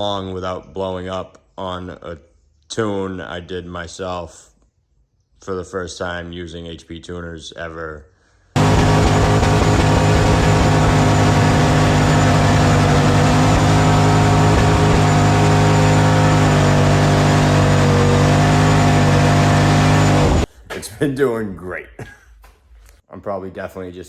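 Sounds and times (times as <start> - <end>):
loud engine running steadily: 8.6 - 20.5.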